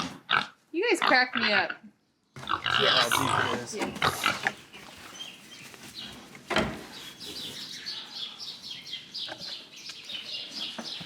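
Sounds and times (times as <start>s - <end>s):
small birds chirping: 0.8s - 11.0s.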